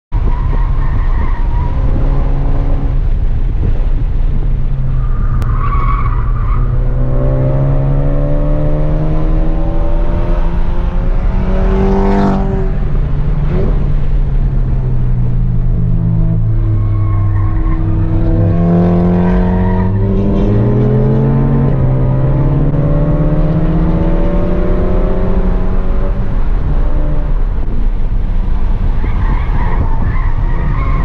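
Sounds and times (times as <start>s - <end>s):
road noise drone: 0.1s - 31.0s
car engine under acceleration: 0.2s - 31.0s.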